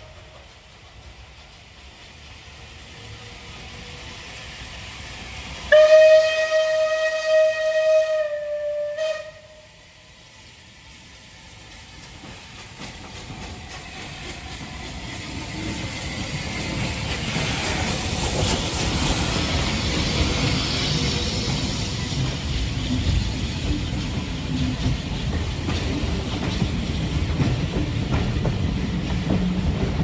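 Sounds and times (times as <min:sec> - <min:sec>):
train approaching: 0:00.0 - 0:30.0
steam locomotive whistle: 0:05.7 - 0:10.1.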